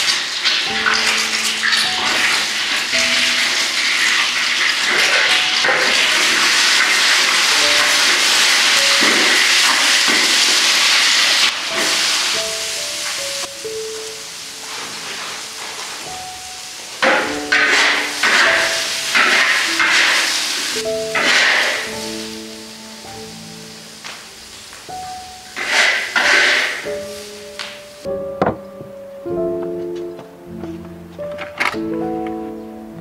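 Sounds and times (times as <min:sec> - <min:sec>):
egg sizzling in hot oil: 0:00.0 - 0:27.5
metal spatula stirring: 0:17.5 - 0:20.3, 0:21.1 - 0:22.0.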